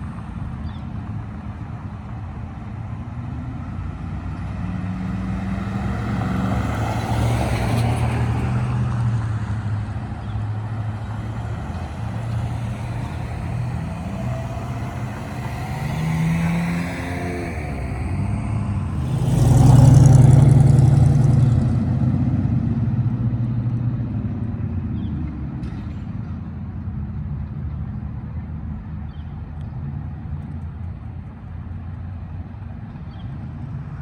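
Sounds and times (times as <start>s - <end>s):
low engine hum: 0.0s - 34.0s
tyre and road noise: 0.0s - 34.0s
engine changing pitch: 4.2s - 22.4s.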